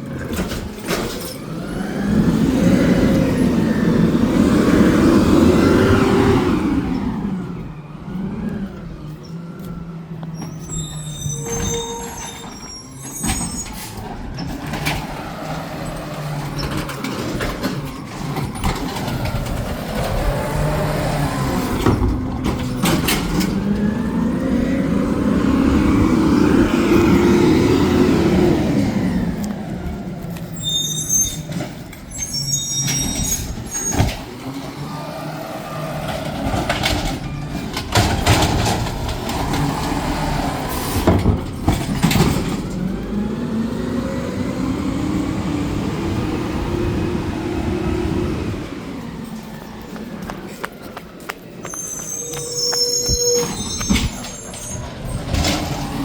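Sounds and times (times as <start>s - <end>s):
garbage truck engine revving: 0.0s - 50.9s, 51.5s - 56.0s
short high squeals: 10.4s - 14.0s, 30.6s - 34.1s, 51.6s - 55.3s.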